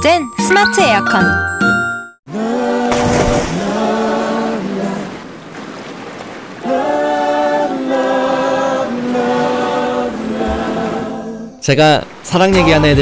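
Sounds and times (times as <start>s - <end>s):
choir voices holding sustained notes: 2.3s - 5.2s, 6.6s - 11.6s.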